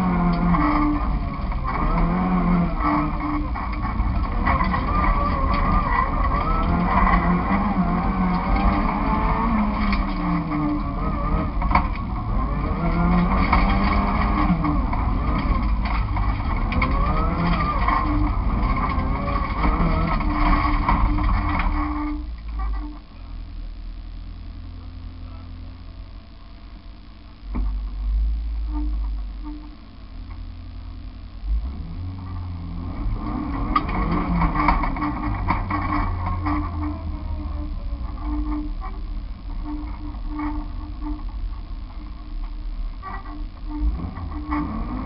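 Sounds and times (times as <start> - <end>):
car engine revving hard: 0.0 - 21.8.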